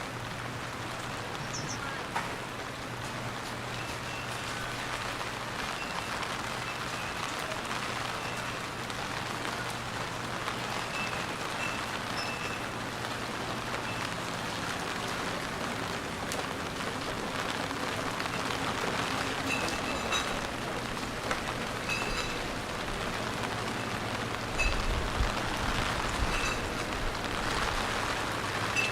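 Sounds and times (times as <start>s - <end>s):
low steady hum: 0.0s - 5.2s
steady rain falling: 0.0s - 28.9s.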